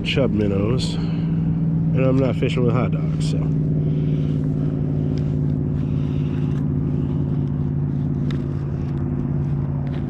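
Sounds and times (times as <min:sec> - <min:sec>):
motor humming: 0:03.0 - 0:10.0.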